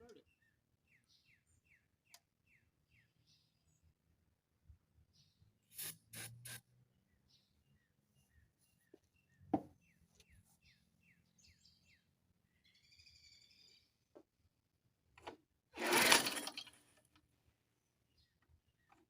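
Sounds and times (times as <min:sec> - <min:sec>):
birds chirping: 0:07.0 - 0:14.2
mower engine cranking: 0:15.2 - 0:16.9.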